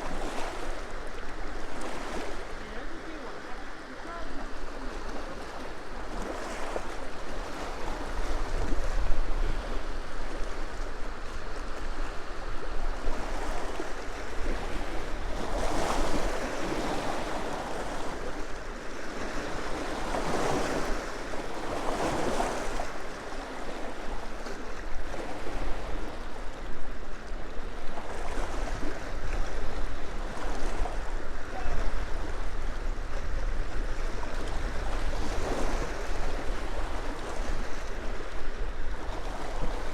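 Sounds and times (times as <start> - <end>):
small waves washing on shore: 0.0 - 39.9.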